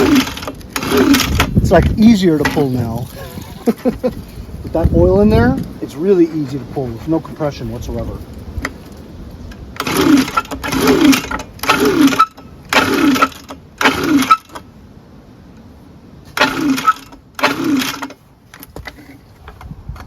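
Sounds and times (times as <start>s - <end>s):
recoil starter pull whirring rasp: 0.0s - 1.7s, 9.8s - 14.6s, 16.4s - 18.2s.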